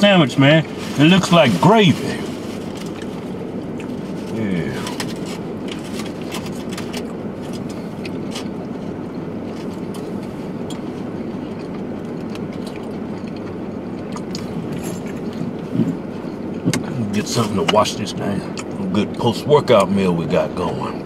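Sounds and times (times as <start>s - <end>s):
low rumble inside a car: 0.0s - 21.0s
foil wrapper crackling: 0.7s - 7.7s
people chewing: 0.7s - 17.6s.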